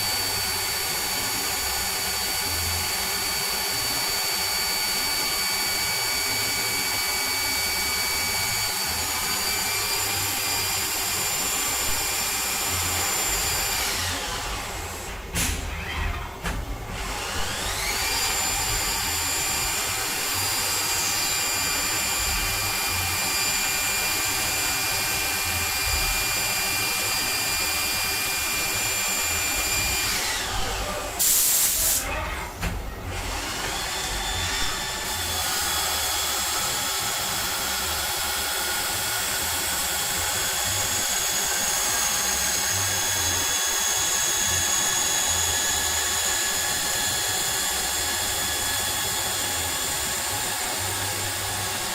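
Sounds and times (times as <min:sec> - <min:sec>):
lathe spindle whining: 0:00.0 - 0:15.3, 0:16.9 - 0:31.1, 0:33.1 - 0:51.9
burst of hiss: 0:31.2 - 0:32.0.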